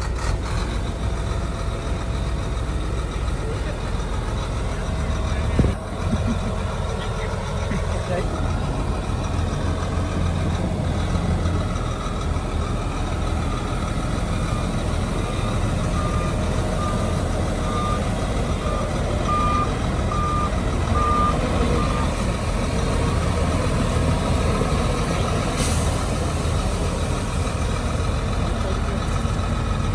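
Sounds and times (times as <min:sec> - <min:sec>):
diesel machinery rumbling: 0:00.0 - 0:29.9
reversing alarm beeping: 0:14.4 - 0:23.5.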